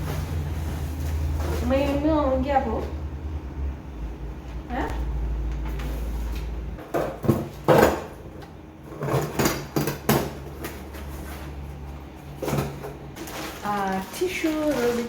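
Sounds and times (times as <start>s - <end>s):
packaging rustling: 10.6s - 15.0s.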